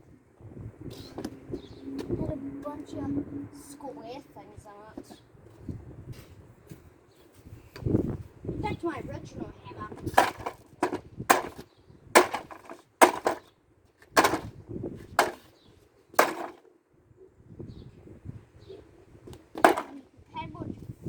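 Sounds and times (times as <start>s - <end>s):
hammer blows on hard plastic: 10.1s - 11.6s, 12.2s - 13.4s.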